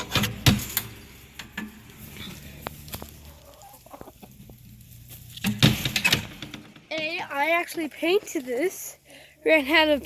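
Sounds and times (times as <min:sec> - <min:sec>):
chickens clucking: 0:00.0 - 0:08.4.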